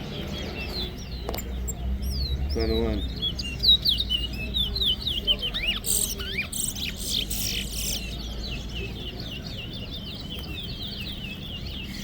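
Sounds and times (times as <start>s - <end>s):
finch singing whistled notes: 0.0s - 12.0s
high bird chattering: 2.0s - 8.3s.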